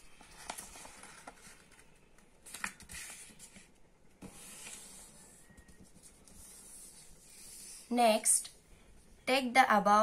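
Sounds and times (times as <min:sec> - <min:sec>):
paper folding and crinkling: 0:00.0 - 0:07.8.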